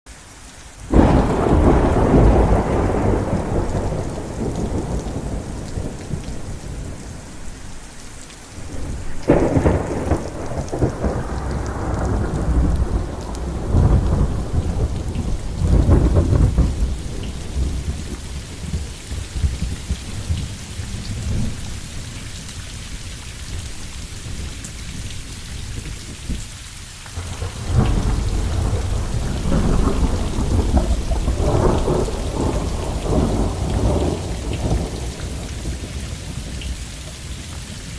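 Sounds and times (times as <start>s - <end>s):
steady rain: 0.1s - 37.9s
thunder rolling: 0.9s - 7.8s, 8.5s - 22.1s, 27.2s - 36.6s.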